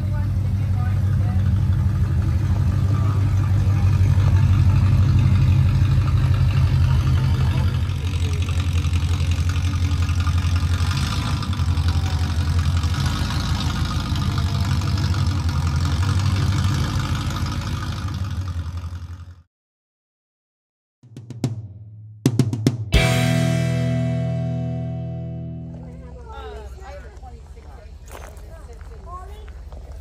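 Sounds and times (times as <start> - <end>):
car engine idling: 0.0 - 19.4.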